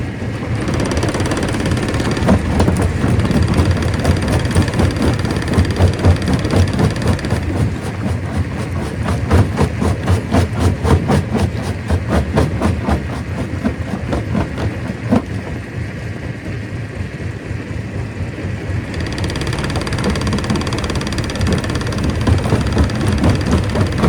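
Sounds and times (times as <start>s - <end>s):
stone crusher machine rumbling: 0.1s - 16.2s, 18.7s - 24.0s.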